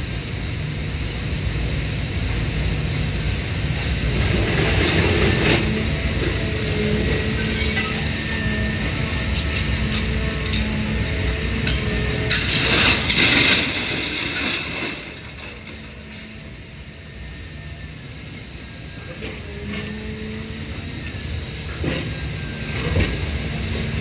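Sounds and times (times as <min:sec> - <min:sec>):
baler machine hum: 0:00.0 - 0:14.0
scrap metal grinding and clattering: 0:04.1 - 0:16.6.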